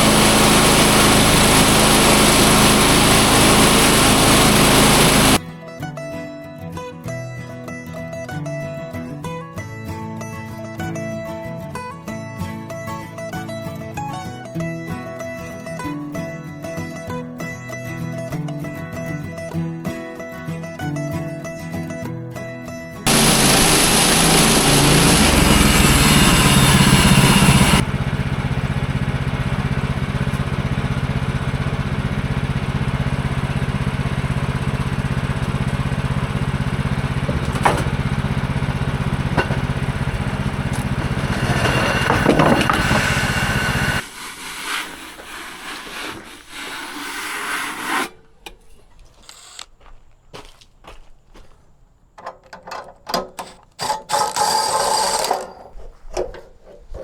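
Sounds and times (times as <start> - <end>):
sawmill engine running: 0.0 - 5.4, 23.1 - 47.2, 48.9 - 50.0, 53.4 - 55.9.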